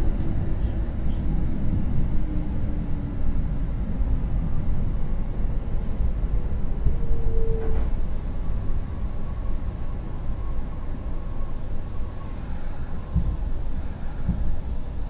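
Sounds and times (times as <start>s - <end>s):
train wheels rumbling: 11.4s - 15.0s.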